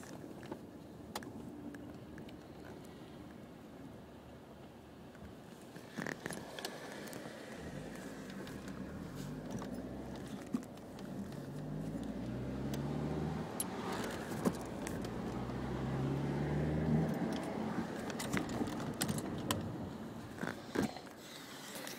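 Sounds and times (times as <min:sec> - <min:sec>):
car engine revving: 0:11.0 - 0:20.5.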